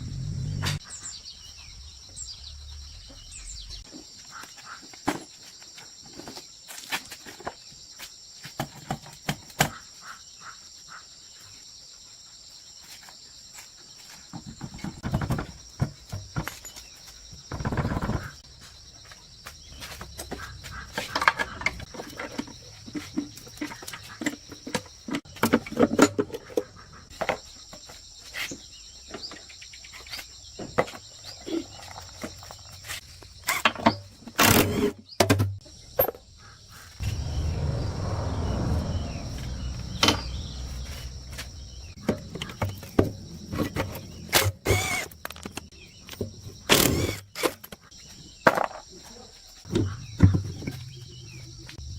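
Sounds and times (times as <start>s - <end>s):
rushing noise: 0.0s - 0.8s, 37.0s - 42.0s
insects calling: 0.0s - 51.9s.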